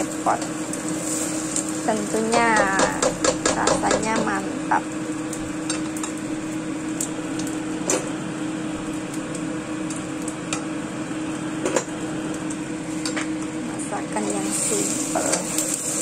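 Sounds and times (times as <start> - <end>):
omelette sizzling in oil: 0.0 - 16.0.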